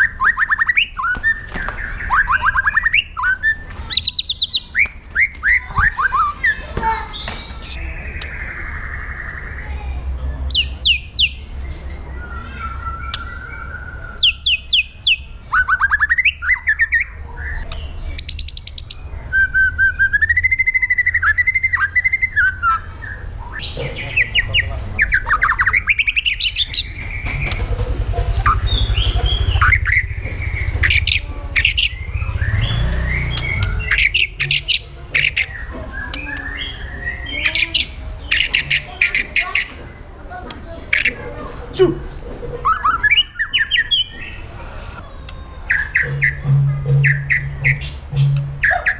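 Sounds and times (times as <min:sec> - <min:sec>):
bird chattering: 0:00.0 - 0:09.9, 0:12.4 - 0:41.5, 0:42.4 - 0:48.9
bird singing varied song: 0:00.0 - 0:41.3, 0:42.6 - 0:48.9
steady low hum: 0:45.9 - 0:48.9.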